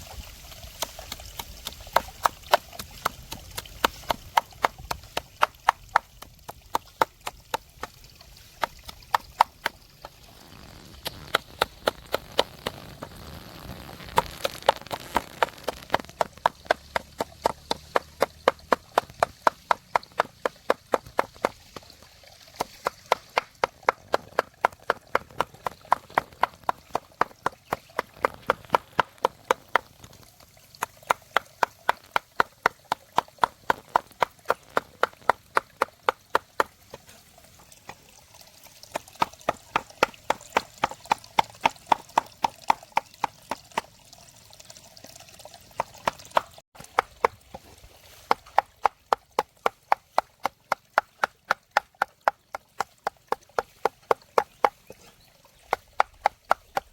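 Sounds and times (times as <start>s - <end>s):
knife chopping on cutting board: 14.2s - 21.6s.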